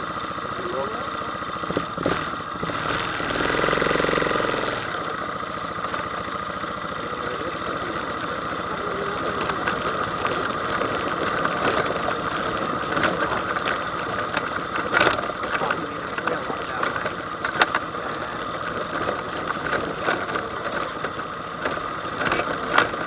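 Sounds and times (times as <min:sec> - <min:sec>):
atv engine running and revving: 0:00.0 - 0:23.0.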